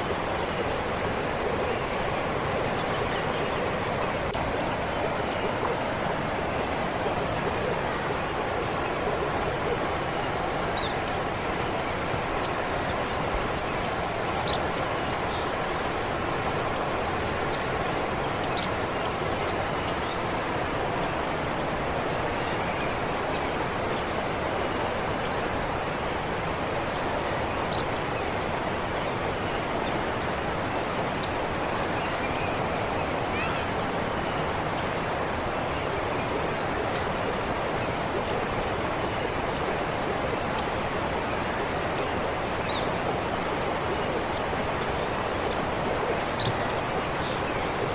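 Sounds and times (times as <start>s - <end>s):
stream flowing: 0.0s - 47.9s
small birds chirping: 41.6s - 47.9s.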